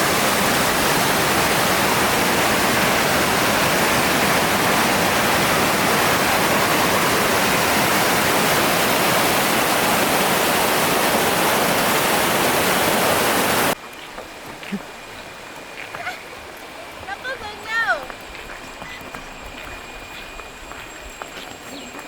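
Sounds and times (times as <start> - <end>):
waterfall rushing: 0.0 - 13.8.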